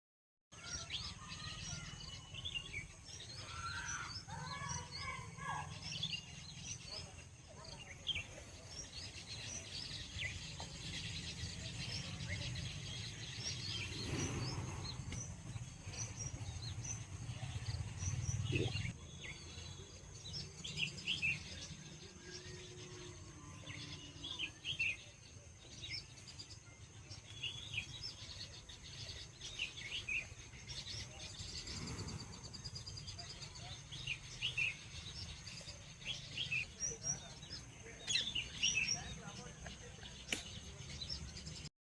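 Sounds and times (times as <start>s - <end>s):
small birds chirping: 0.5s - 41.7s.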